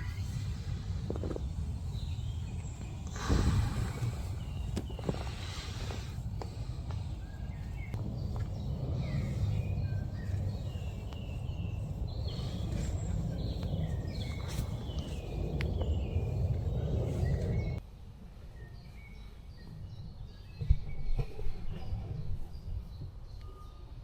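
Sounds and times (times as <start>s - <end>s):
birds chirping and whistling: 0.0s - 17.8s
steady low rumble: 0.0s - 17.8s.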